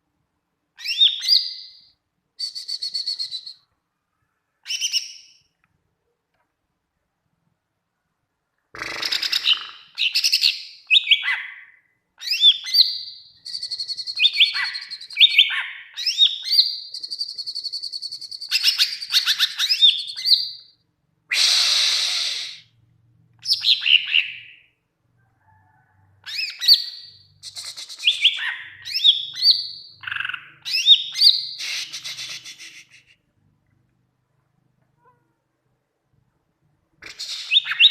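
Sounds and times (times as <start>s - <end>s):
bird singing whistles and trills: 0.8s - 1.8s, 2.4s - 3.7s, 9.1s - 20.7s, 26.3s - 33.0s, 37.2s - 37.9s
harsh rasping bird call: 21.3s - 22.7s, 31.2s - 33.2s.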